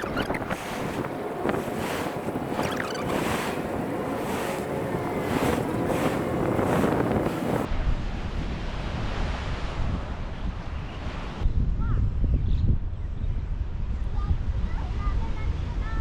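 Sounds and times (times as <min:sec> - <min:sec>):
sea waves rushing: 0:00.0 - 0:07.7
low rumble of wind: 0:00.0 - 0:16.0
wind buffeting microphone: 0:00.0 - 0:16.0.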